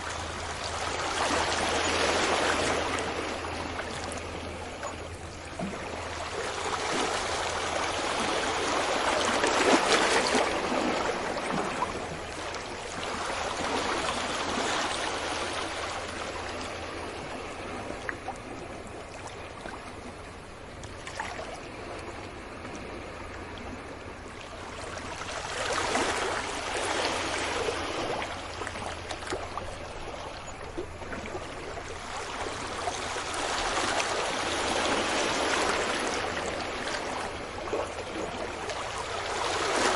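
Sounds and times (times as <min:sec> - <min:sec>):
large waves breaking: 0:00.0 - 0:20.3, 0:21.0 - 0:39.9
surf hissing on a beach: 0:05.9 - 0:18.4, 0:21.8 - 0:28.7, 0:32.0 - 0:39.9.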